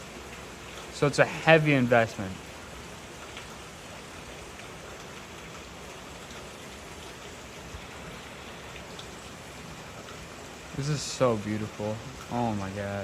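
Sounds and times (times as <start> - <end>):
heavy rain falling: 0.0 - 13.0
raindrop ticks: 0.0 - 13.0.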